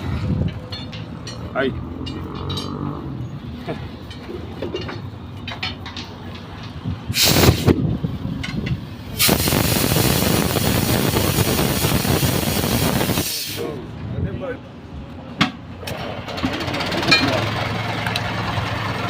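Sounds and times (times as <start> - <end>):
loud hiss of rushing air: 7.1 - 7.8, 9.1 - 13.8.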